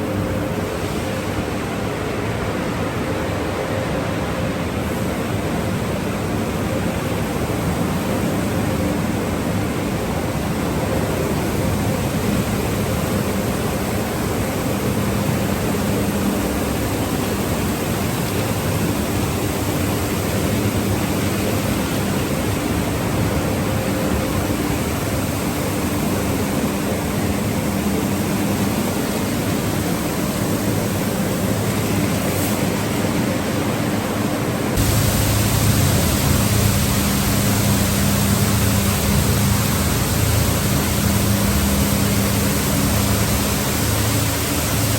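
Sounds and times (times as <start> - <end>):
car wash equipment rushing noise: 0.0 - 44.9
low hum: 34.8 - 44.9.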